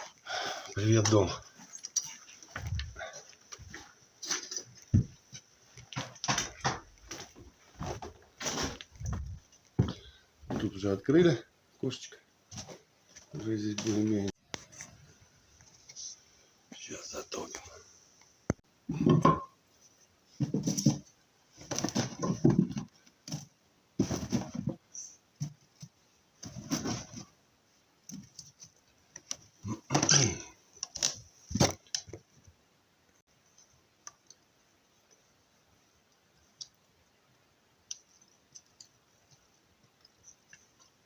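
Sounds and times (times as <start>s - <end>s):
wood and kindling knocking: 3.6s - 5.2s, 5.9s - 10.8s, 18.9s - 19.5s, 20.3s - 24.8s, 29.9s - 32.2s.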